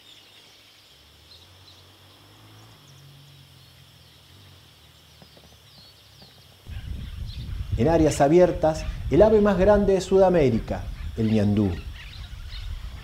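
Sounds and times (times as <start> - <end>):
high bird chirps: 10.9 - 13.0.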